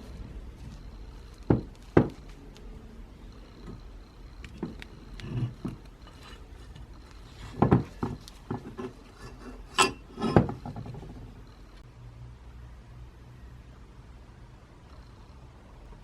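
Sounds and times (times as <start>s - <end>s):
light clicks and scrapes: 3.5s - 11.4s.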